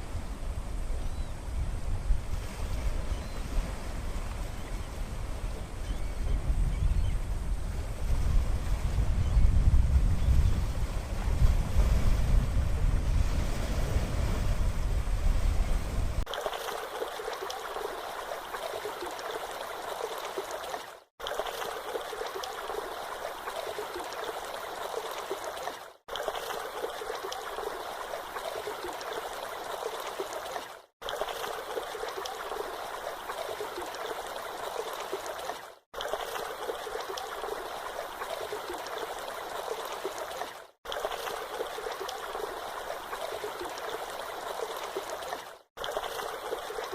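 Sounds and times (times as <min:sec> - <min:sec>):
wind buffeting microphone: 0:00.1 - 0:16.3
flowing water rushing: 0:16.0 - 0:46.9.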